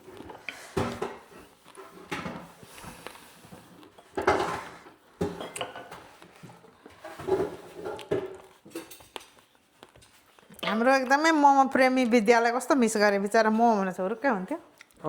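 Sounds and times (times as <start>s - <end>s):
dishes and utensils clattering: 0.0s - 9.4s.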